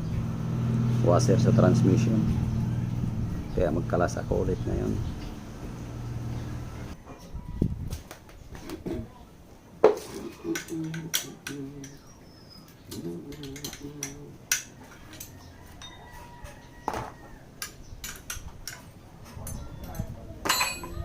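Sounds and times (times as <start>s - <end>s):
metal tools clinking: 12.9s - 16.2s, 17.6s - 21.0s.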